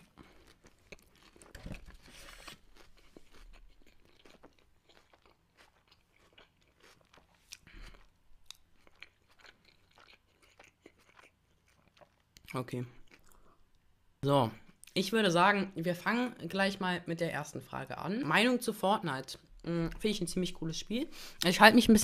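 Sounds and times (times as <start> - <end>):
mouth clicks and soft crunches: 0.0 - 13.8
person chewing burger: 0.0 - 13.9.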